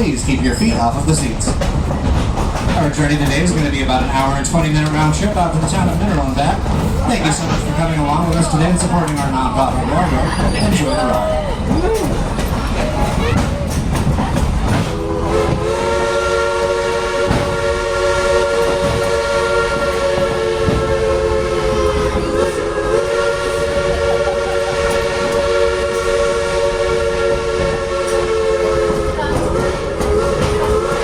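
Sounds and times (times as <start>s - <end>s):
railroad cars rumbling: 0.0s - 31.0s
train whistle chord: 15.0s - 31.0s.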